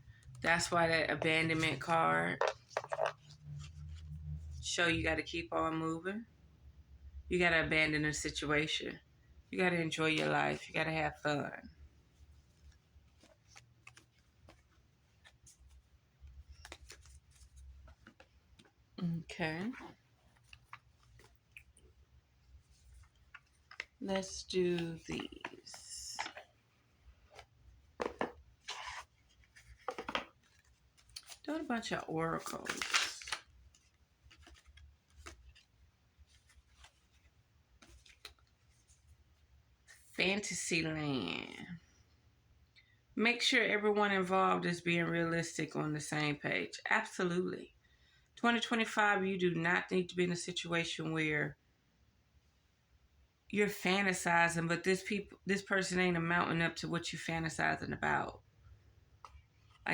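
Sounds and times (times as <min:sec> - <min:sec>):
cards being handled: 0:00.5 - 0:03.4, 0:12.6 - 0:18.8, 0:22.7 - 0:38.9
cards clicking and rustling: 0:02.4 - 0:03.4, 0:16.5 - 0:17.4, 0:23.4 - 0:24.0, 0:27.4 - 0:35.8.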